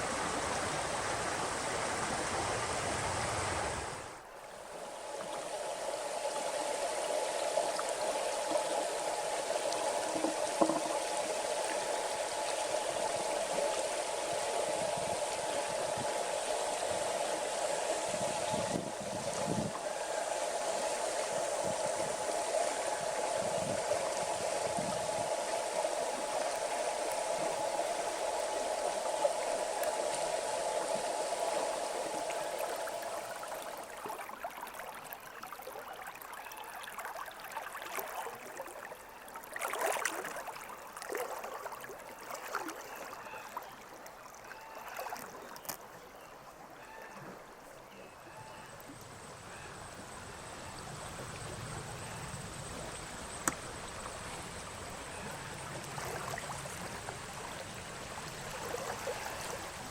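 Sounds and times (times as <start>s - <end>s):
river water rushing over riffle: 0.0s - 42.8s, 51.0s - 59.9s
water gurgling and splashing: 7.5s - 16.0s, 18.4s - 43.0s, 55.7s - 59.9s.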